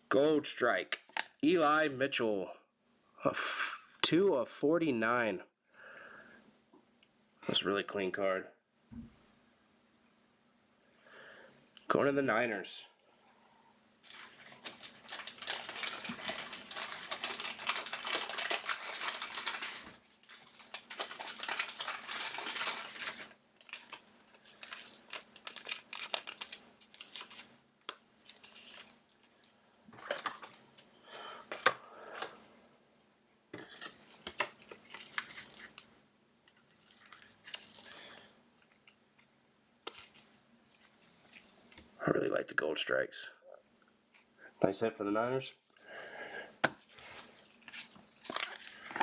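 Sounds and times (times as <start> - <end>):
card packaging crinkling: 14.0 - 30.8, 33.7 - 35.9, 36.5 - 38.3, 39.8 - 42.0, 45.7 - 49.0.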